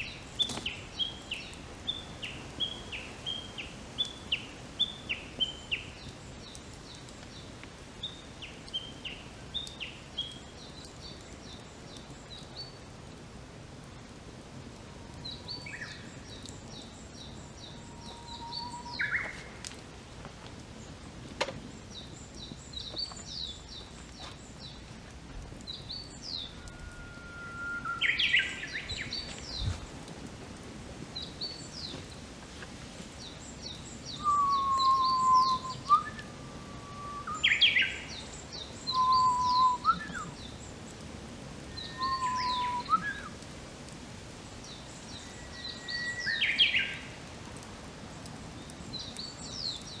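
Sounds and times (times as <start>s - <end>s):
bird high chirps: 17.6s - 19.6s, 25.9s - 29.8s, 33.7s - 40.3s, 41.8s - 43.3s
bird whistling with rising flourish: 18.0s - 19.5s, 26.5s - 29.7s, 34.1s - 38.2s, 38.9s - 40.3s, 41.8s - 43.3s.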